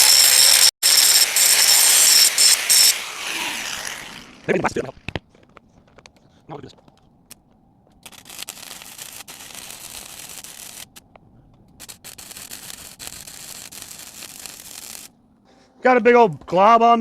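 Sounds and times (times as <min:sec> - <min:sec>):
welding arc crackling and sizzling: 0:00.0 - 0:04.4, 0:08.0 - 0:11.0, 0:11.8 - 0:15.2.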